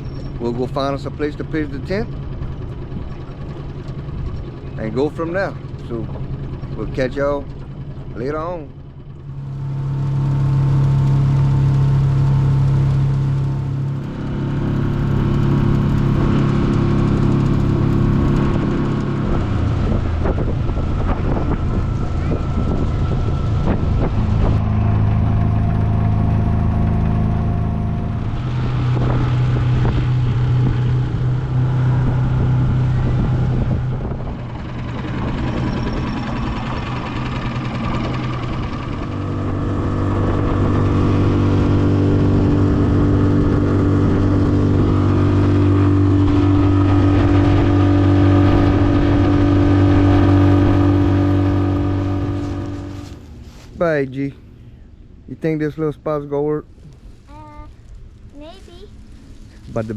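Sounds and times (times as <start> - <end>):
small boat motor running: 0.0 - 59.9.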